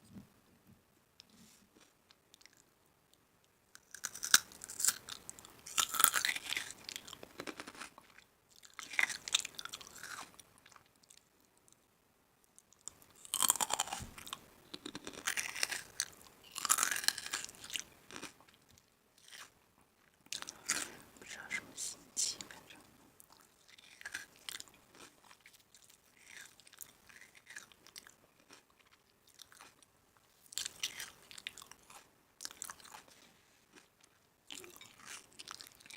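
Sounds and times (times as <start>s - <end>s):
person chewing crunchy food: 3.8s - 11.3s, 12.8s - 19.6s, 20.3s - 21.6s, 23.2s - 35.9s.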